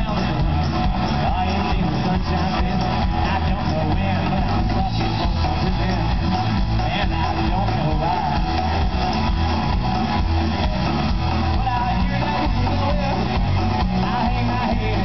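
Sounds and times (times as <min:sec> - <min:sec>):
bass line: 0:00.0 - 0:15.0
electric guitar: 0:00.0 - 0:15.0
live rock band: 0:00.0 - 0:15.0.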